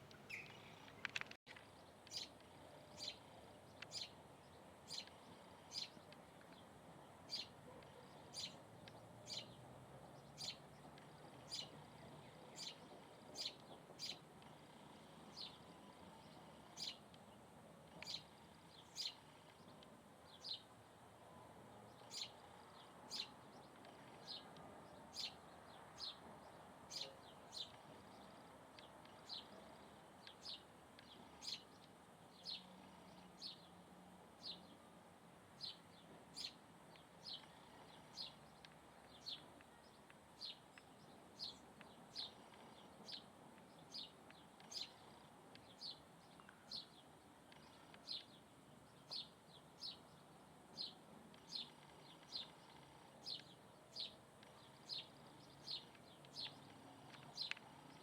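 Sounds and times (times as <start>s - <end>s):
bird chirping: 0.0s - 17.3s, 17.9s - 20.7s, 21.3s - 33.8s, 35.6s - 58.0s.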